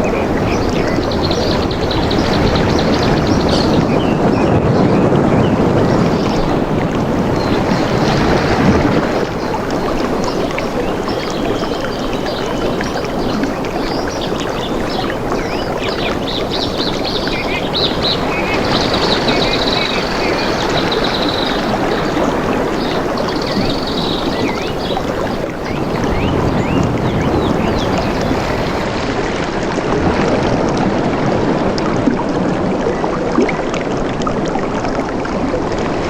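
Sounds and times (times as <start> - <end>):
birds chirping and trilling: 0.0 - 6.7, 13.2 - 28.8
flowing water: 0.0 - 36.0.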